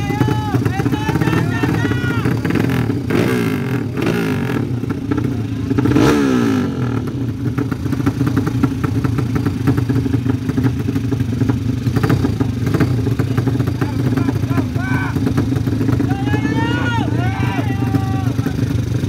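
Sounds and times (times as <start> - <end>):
engine running with rattly crackle: 7.0 - 19.0.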